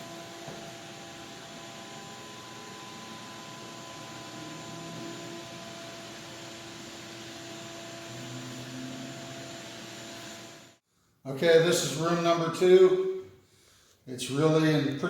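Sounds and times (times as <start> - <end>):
electric floor sander running: 0.0 - 10.8.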